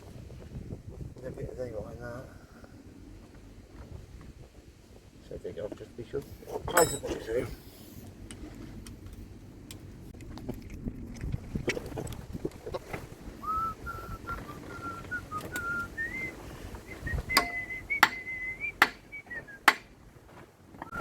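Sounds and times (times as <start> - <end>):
metal tools clinking: 6.5 - 7.6
person whistling a tune: 13.4 - 19.8.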